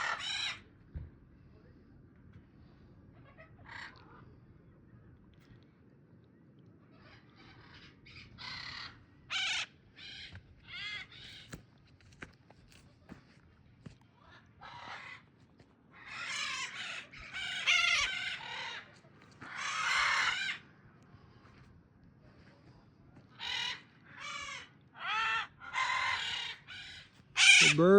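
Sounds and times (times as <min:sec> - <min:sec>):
macaws squawking: 0:00.0 - 0:00.6, 0:07.4 - 0:11.6, 0:14.6 - 0:15.2, 0:16.0 - 0:20.6, 0:23.4 - 0:27.9.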